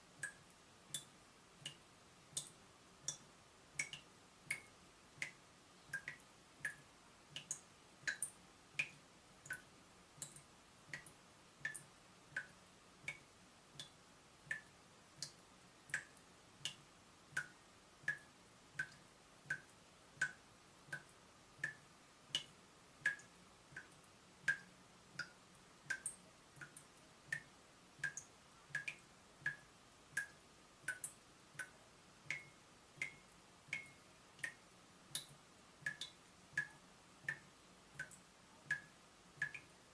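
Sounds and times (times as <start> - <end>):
water dripping from tap: 0.2 - 39.8.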